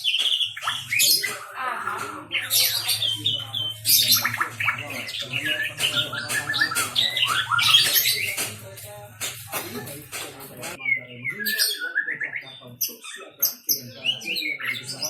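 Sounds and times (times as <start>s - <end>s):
bird singing whistles and trills: 0.0s - 1.4s, 2.3s - 8.5s, 10.8s - 15.0s.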